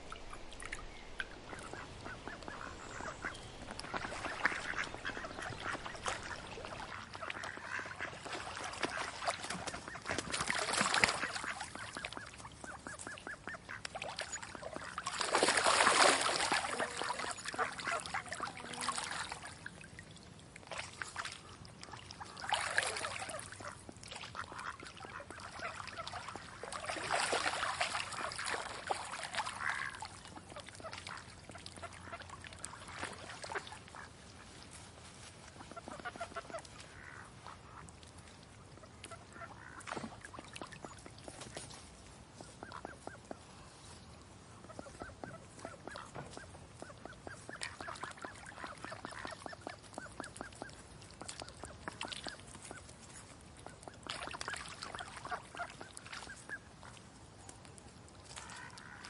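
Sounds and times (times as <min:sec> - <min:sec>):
ducks quacking: 0:00.1 - 0:19.6, 0:21.4 - 0:34.6, 0:35.5 - 0:37.9, 0:38.8 - 0:40.9, 0:44.7 - 0:52.8.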